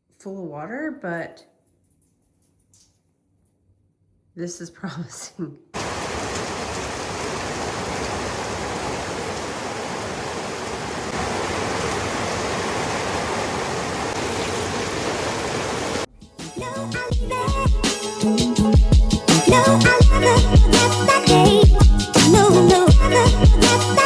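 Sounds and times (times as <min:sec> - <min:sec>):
flowing water rushing: 0:05.8 - 0:16.1.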